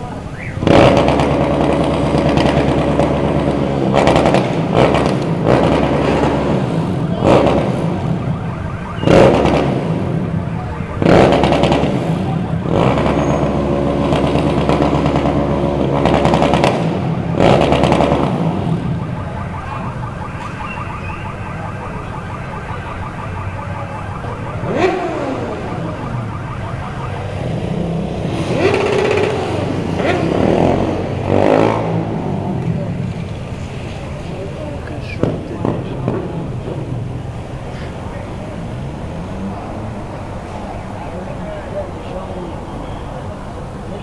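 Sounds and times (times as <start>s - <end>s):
motorcycle engine revving: 0.6s - 21.2s, 24.0s - 34.2s.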